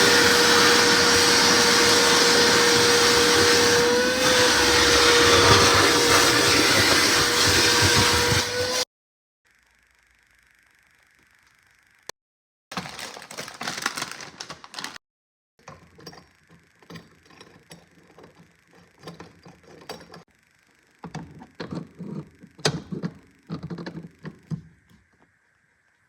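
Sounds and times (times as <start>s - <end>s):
parts and tools knocking and rattling: 15.6s - 20.3s, 21.0s - 25.3s.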